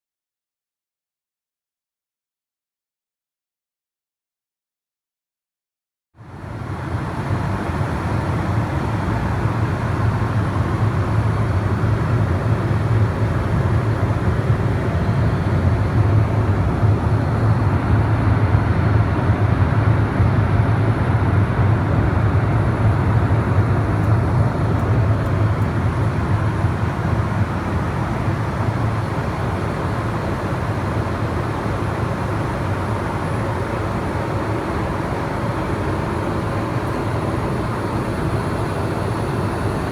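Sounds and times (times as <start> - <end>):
vehicle rumble from inside: 6.4 - 32.5.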